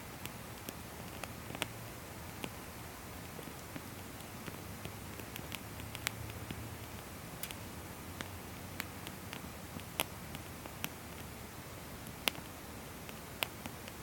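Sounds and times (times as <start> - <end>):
low background noise: 0.0 - 14.0
firewood crackling and popping: 3.2 - 11.4.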